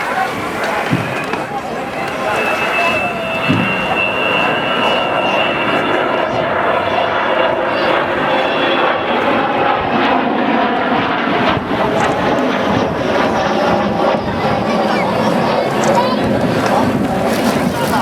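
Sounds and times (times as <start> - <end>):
jet aircraft roaring: 0.0 - 18.0
high whistle: 0.8 - 6.4.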